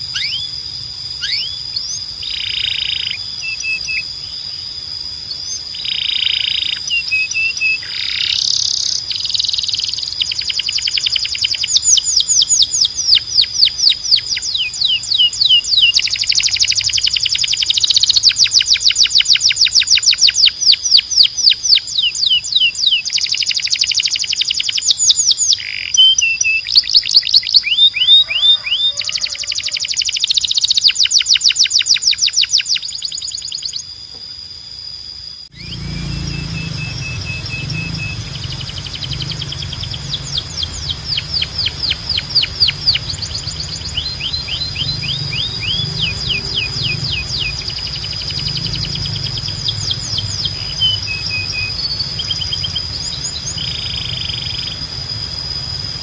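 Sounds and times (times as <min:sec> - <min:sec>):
canary singing trills: 0:00.0 - 0:56.0
steady high-pitched tone: 0:29.8 - 0:56.0.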